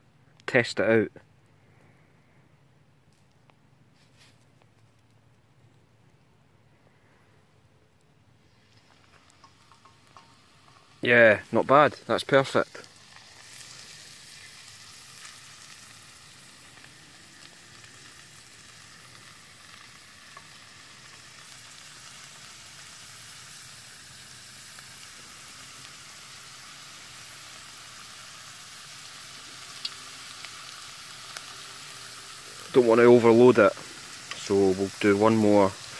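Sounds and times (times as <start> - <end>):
potato slices sizzling in oil: 8.5 - 35.9.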